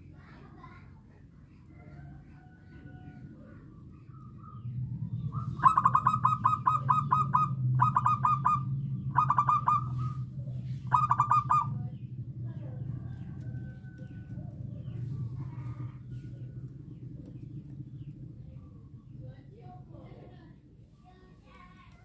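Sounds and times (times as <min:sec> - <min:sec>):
steady low hum: 0:00.0 - 0:22.0
dove cooing: 0:01.7 - 0:19.1.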